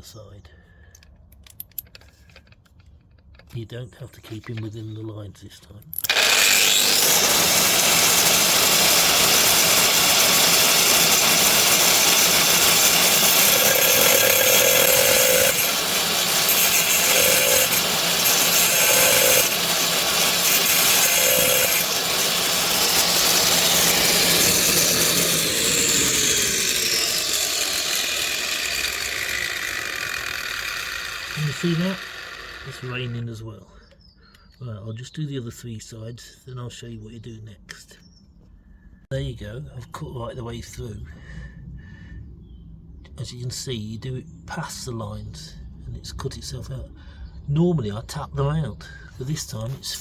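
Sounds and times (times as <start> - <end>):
angle grinder cutting tile: 6.0 - 33.2
grinder winding down: 6.0 - 33.2.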